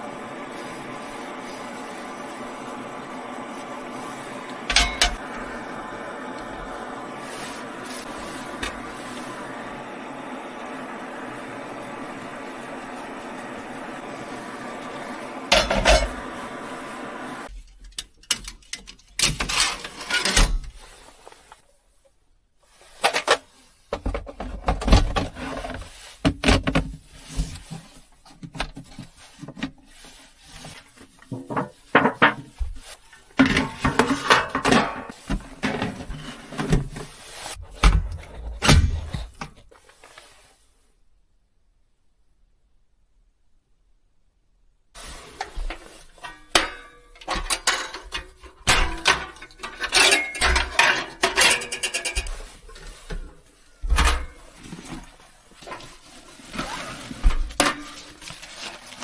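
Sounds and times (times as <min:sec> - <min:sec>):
mechanical hum: 0:00.0 - 0:17.6.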